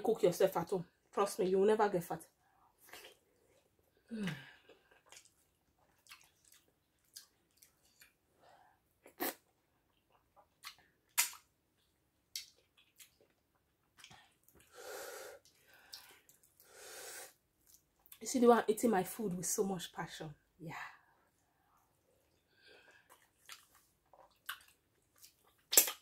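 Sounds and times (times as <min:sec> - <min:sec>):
wet chewing and lip smacks: 0:04.7 - 0:08.2, 0:09.8 - 0:14.7, 0:15.4 - 0:16.7, 0:17.6 - 0:18.2, 0:21.8 - 0:26.0.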